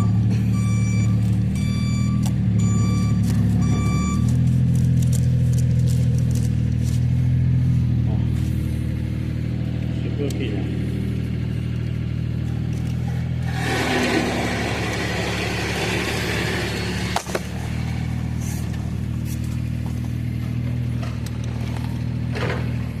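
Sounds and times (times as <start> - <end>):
airy rush: 13.1 - 19.8
vacuum cleaner motor running: 13.5 - 17.9.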